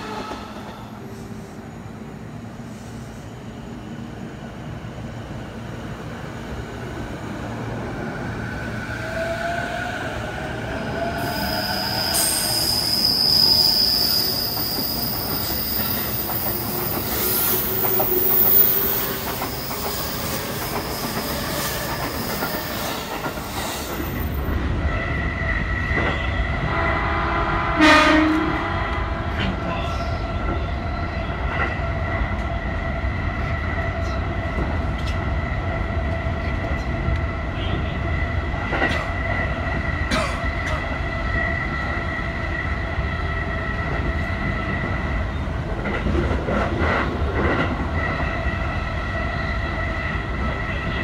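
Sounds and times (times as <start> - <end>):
train wheels rumbling: 0.0 - 51.0
high wheel squeal: 11.1 - 23.9.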